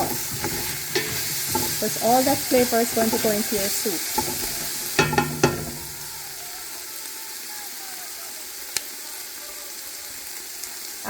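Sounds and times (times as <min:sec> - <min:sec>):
utensil knocking against pot: 0:00.0 - 0:03.5, 0:04.2 - 0:06.2
food sizzling in oil: 0:00.0 - 0:11.0.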